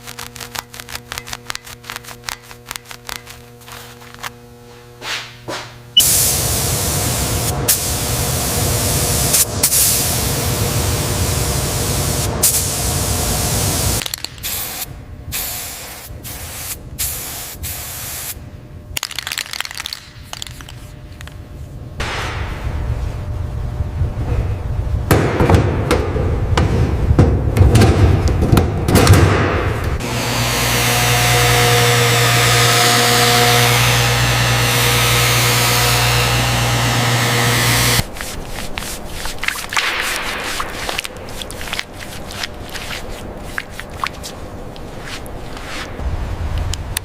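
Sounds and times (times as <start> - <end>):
steady hum: 0.0 - 19.0, 19.7 - 47.0
compressed air spraying: 6.0 - 10.4, 11.2 - 18.4.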